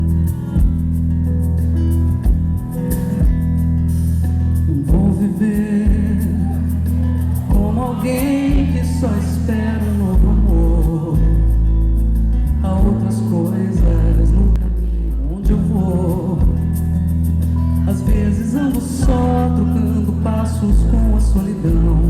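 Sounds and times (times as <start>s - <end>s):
live band playing: 0.0s - 22.0s
person singing: 4.6s - 16.9s, 17.6s - 22.0s.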